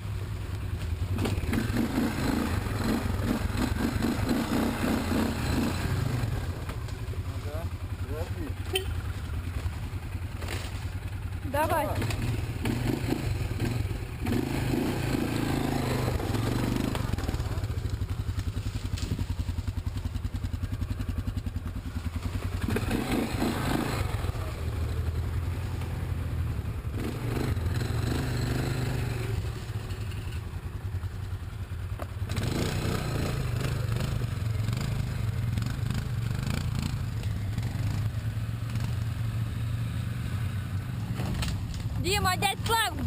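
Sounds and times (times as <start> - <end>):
vehicle engine running: 0.0 - 43.0.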